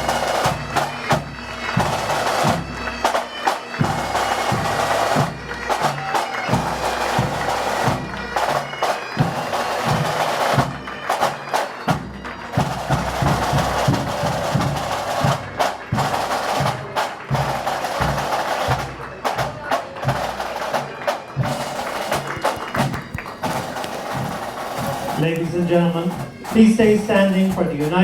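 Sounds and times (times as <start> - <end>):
bagpipes drones and melody: 0.0 - 28.0
snare and bass drums: 11.9 - 28.0.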